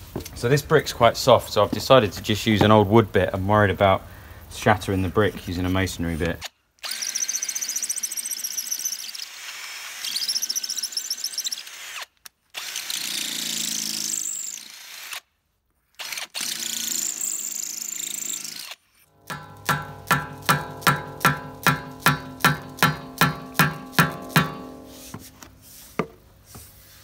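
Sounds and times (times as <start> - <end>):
power drill boring into brick: 6.8 - 15.3, 16.0 - 18.9.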